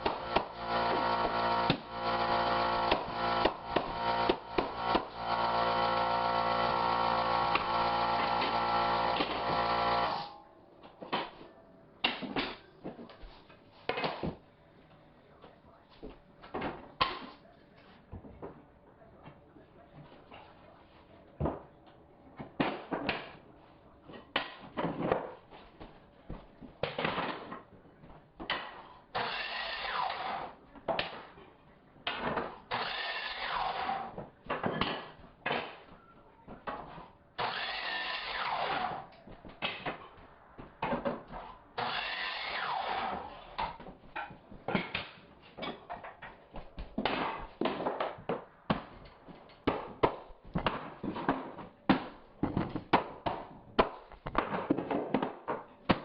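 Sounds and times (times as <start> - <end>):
power drill bursts: 0.0 - 10.4, 37.4 - 39.0.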